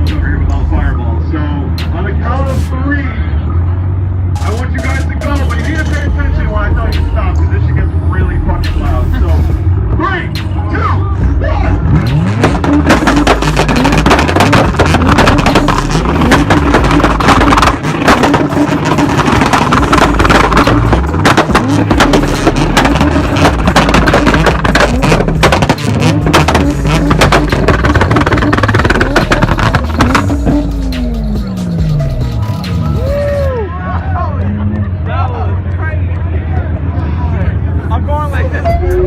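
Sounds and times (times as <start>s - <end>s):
car engines revving: 0.0s - 39.0s
exhaust pops and backfires: 8.2s - 10.6s, 11.8s - 33.5s.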